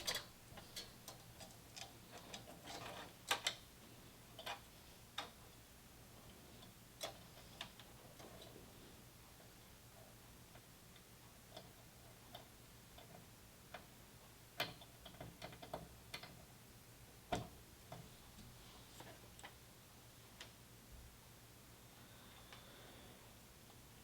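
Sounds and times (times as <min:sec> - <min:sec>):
faint clicks and taps: 0:10.5 - 0:16.5, 0:17.3 - 0:19.6, 0:20.4 - 0:20.6.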